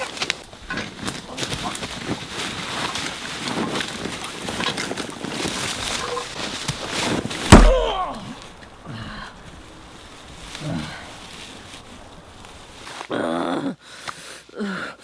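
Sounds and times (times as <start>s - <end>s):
rustling and scuffling: 0.0s - 12.9s
heavy thud with deep boom: 7.5s - 8.2s.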